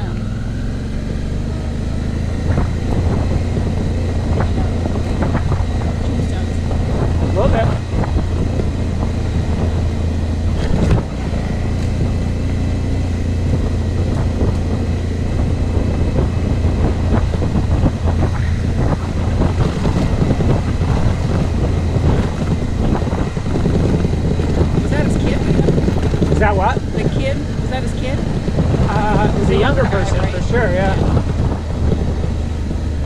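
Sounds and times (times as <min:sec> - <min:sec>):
motorcycle engine running: 0:00.0 - 0:33.0
wind noise on microphone: 0:00.0 - 0:33.0.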